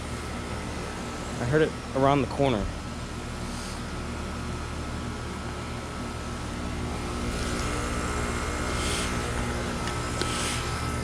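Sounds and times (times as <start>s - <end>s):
heat pump compressor hum: 0.0s - 11.0s
rushing hiss: 10.1s - 10.8s.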